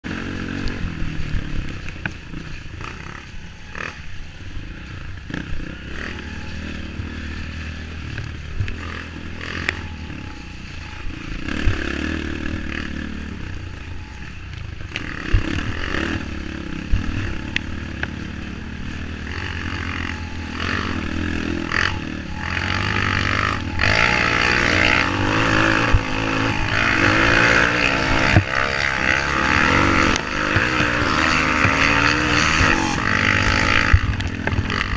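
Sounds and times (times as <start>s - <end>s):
motorcycle engine running: 0.0s - 34.9s
knocks and clatter from bike: 28.0s - 34.9s.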